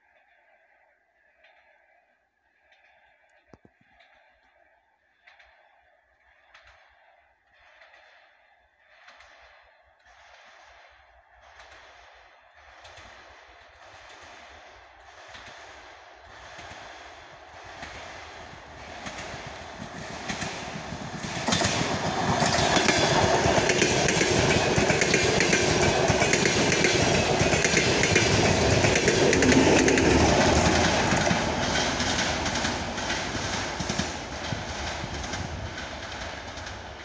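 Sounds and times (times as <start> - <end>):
passing train rumble: 12.6 - 37.0
wheels clacking over rail joints: 12.8 - 37.0.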